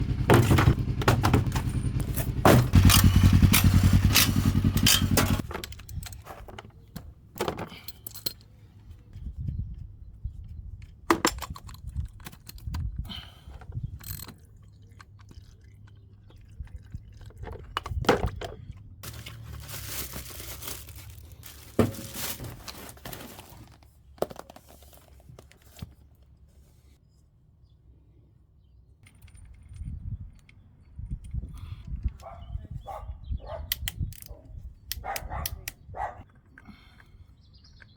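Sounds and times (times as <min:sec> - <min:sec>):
tools and parts clinking: 0:00.2 - 0:09.8, 0:10.8 - 0:14.5, 0:17.6 - 0:25.9, 0:29.0 - 0:32.5, 0:33.7 - 0:37.1.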